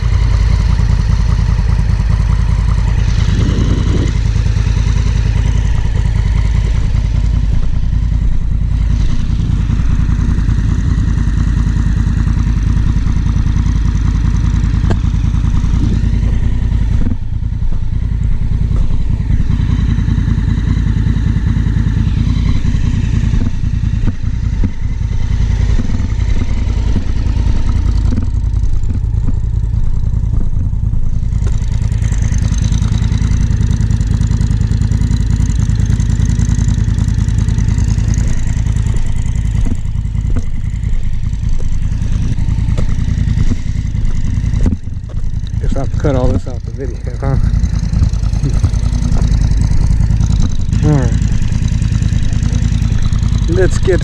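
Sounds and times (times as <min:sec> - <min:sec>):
motorcycle engine running: 0:00.0 - 0:54.0
wind buffeting microphone: 0:02.8 - 0:09.1.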